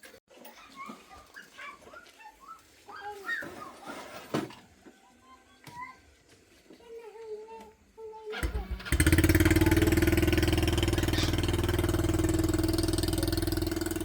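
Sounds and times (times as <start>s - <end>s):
motorcycle engine starting and idling: 8.3s - 14.0s.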